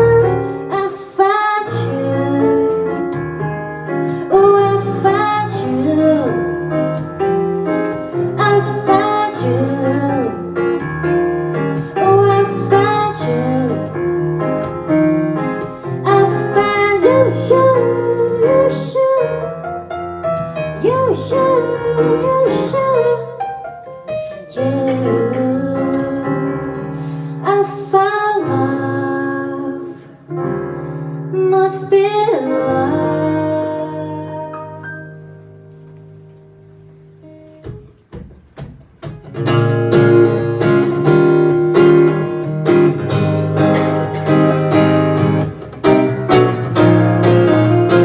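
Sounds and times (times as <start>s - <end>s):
acoustic guitar strumming: 0.0s - 19.3s, 20.0s - 27.2s, 37.4s - 48.0s
sustained keyboard chords: 0.0s - 26.8s, 39.0s - 48.0s.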